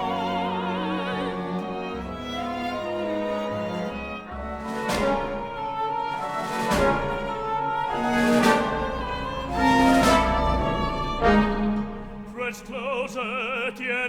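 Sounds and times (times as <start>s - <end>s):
orchestra holding chords: 0.0s - 13.1s
strong struck accents: 4.4s - 13.1s.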